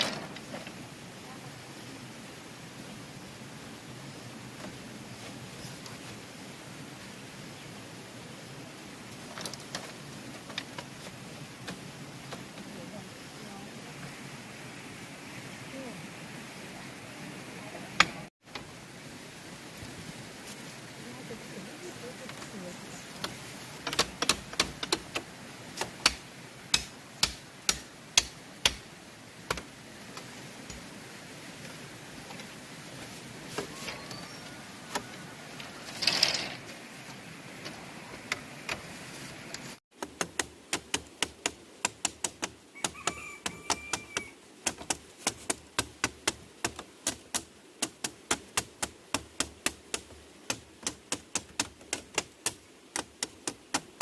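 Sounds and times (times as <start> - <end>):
hand tool knocking bamboo: 23.9 - 25.2, 26.0 - 28.8, 40.0 - 54.0.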